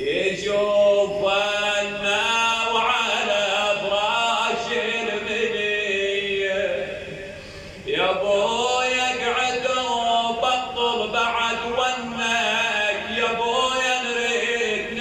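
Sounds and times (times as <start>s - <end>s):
man chanting a lament: 0.0s - 15.0s.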